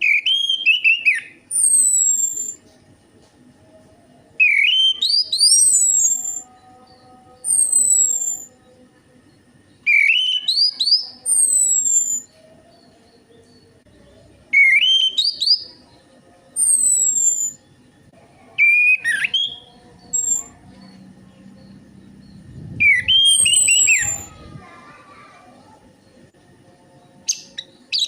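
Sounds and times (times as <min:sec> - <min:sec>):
thrush song whistles: 0:00.0 - 0:02.6, 0:04.4 - 0:06.5, 0:09.9 - 0:12.3, 0:14.6 - 0:15.6, 0:16.6 - 0:17.6, 0:22.6 - 0:24.5.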